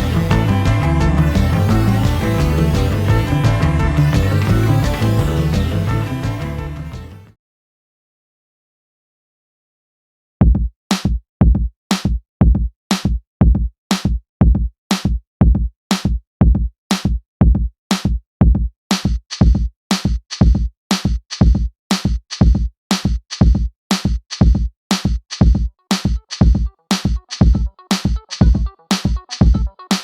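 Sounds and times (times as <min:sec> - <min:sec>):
electronic music with drum-machine beat: 0:00.0 - 0:07.2, 0:18.4 - 0:30.0.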